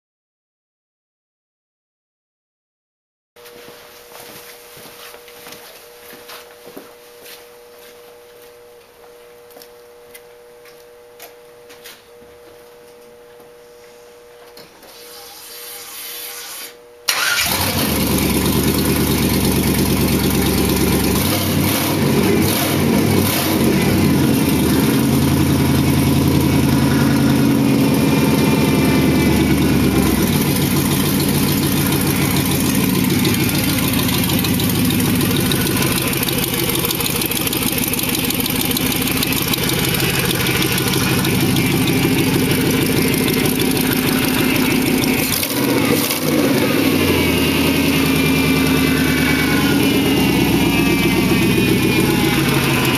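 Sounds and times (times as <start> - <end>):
car engine starting and idling: 17.1 - 52.9.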